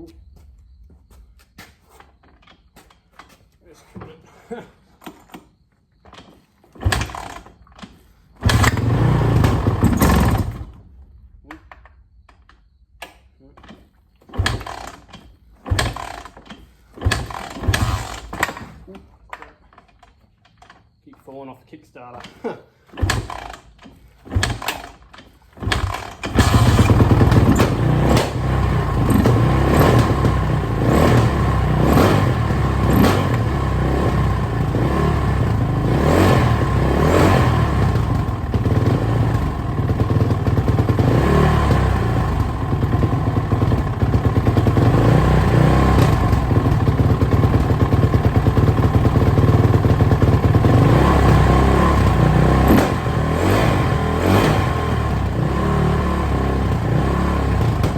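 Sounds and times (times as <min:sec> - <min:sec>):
motorcycle engine kick-started: 0:05.0 - 0:12.7, 0:13.6 - 0:21.0, 0:22.1 - 0:57.9
engine running loud and uneven: 0:25.8 - 0:57.9.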